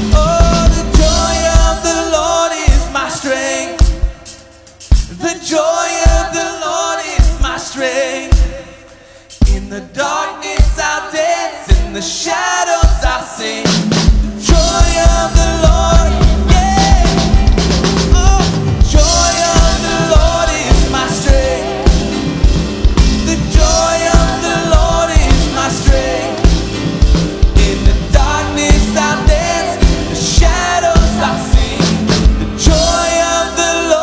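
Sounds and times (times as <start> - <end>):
bass guitar: 0.0 - 2.9, 14.4 - 34.0
drum kit rock beat: 0.0 - 33.9
people singing: 0.0 - 34.0
piano: 0.0 - 34.0.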